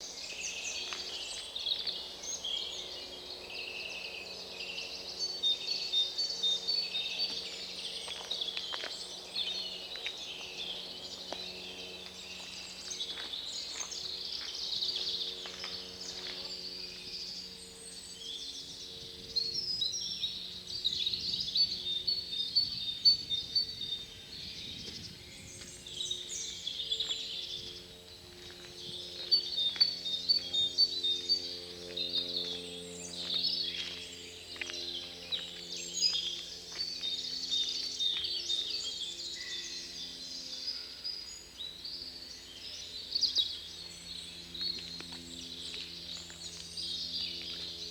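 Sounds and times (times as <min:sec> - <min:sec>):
wild birds singing and calling: 0:00.0 - 0:47.9.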